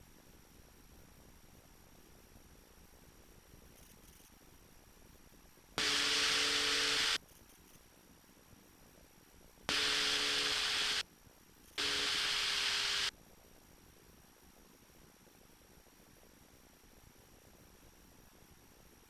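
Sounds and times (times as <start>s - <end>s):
radio static bursts: 5.8s - 7.2s, 9.7s - 11.0s, 11.8s - 13.1s.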